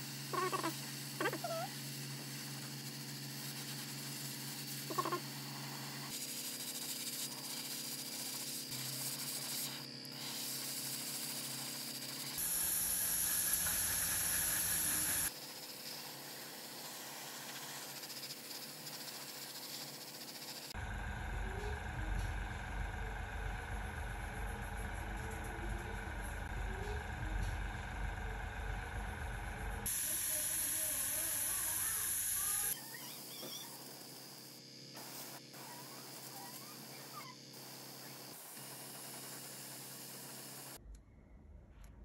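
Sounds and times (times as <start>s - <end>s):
airbrush spraying hiss: 0.0s - 20.8s, 29.8s - 32.8s, 33.5s - 40.8s
airbrush compressor humming: 0.0s - 40.8s.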